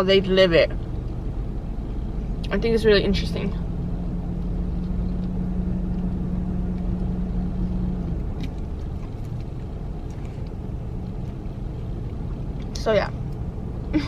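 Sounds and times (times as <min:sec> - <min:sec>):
car engine running: 0:00.0 - 0:14.0
steady hum: 0:00.0 - 0:14.0.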